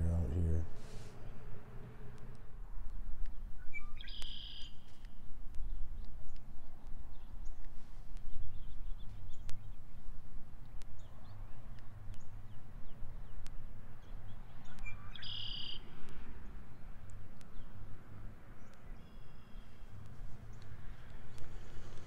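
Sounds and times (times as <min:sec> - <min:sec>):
low outdoor rumble: 0:00.0 - 0:03.7
songbirds chirping: 0:00.0 - 0:22.0.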